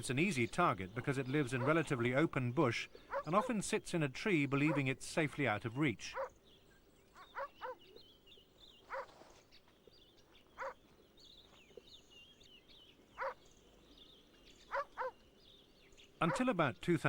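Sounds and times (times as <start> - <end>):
lemur barking calls: 0.0 - 5.0, 5.9 - 6.4, 7.1 - 9.4, 10.3 - 10.9, 12.8 - 17.0.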